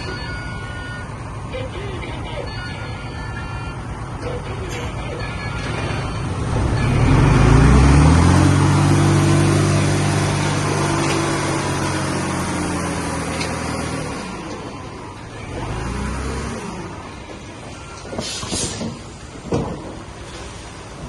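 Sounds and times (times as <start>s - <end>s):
heavy diesel engine revving: 5.7s - 17.6s.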